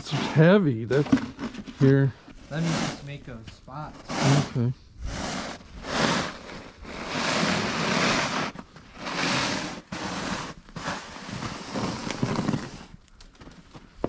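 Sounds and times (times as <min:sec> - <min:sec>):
wet snow being scraped: 0:00.0 - 0:13.0.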